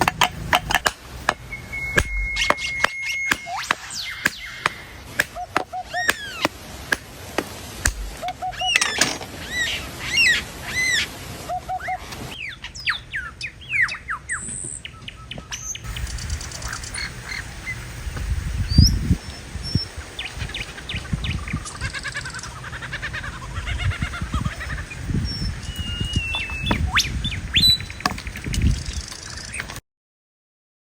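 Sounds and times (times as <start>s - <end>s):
dull thumps: 0.0s - 8.4s
birds chirping: 0.0s - 29.8s.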